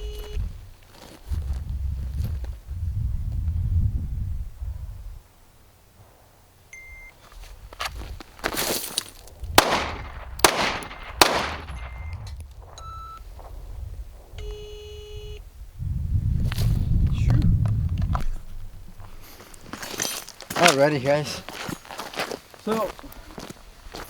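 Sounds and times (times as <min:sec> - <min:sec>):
gunshots: 0:09.6 - 0:12.4.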